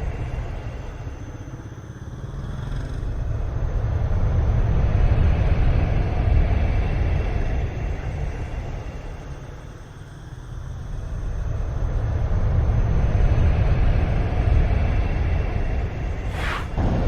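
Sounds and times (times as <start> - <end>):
strong gusting wind: 11.5 - 17.0.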